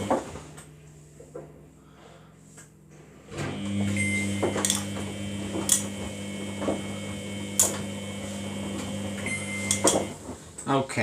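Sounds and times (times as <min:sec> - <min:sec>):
washing machine drum humming: 0:00.0 - 0:00.6, 0:03.3 - 0:10.6.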